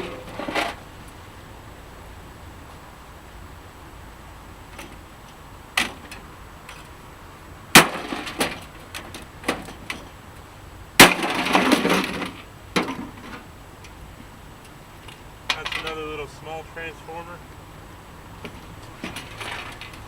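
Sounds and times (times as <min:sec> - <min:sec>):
loose metal rattling: 0:11.0 - 0:14.0, 0:18.4 - 0:20.0.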